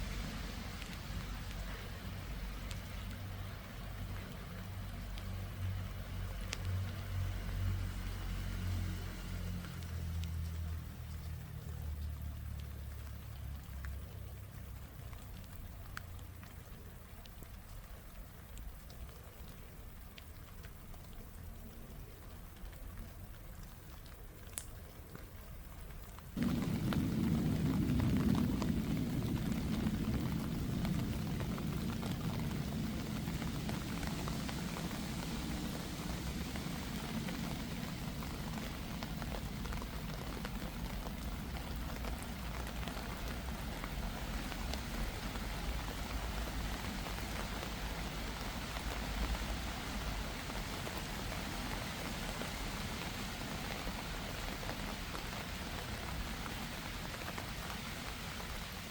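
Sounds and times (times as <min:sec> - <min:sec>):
rain on an umbrella: 0:00.0 - 0:58.9.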